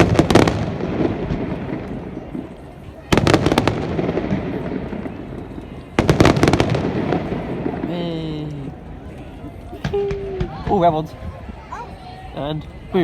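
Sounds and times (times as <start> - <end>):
fireworks exploding: 0.0 - 8.8.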